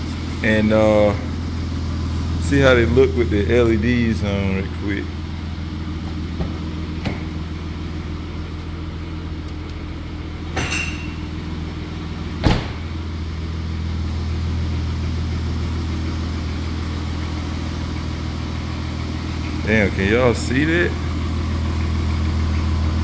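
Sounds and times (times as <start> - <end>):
car engine idling: 0.0 - 23.0
car door shutting: 12.4 - 12.9.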